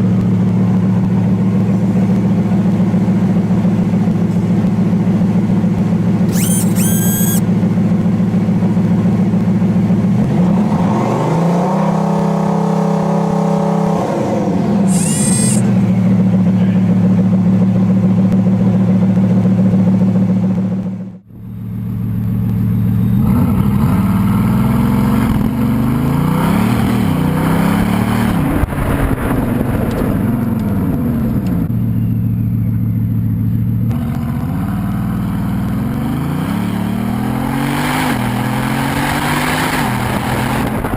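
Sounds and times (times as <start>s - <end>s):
car engine idling and revving: 0.0s - 40.9s
short high whistles: 6.3s - 7.4s, 14.9s - 15.7s.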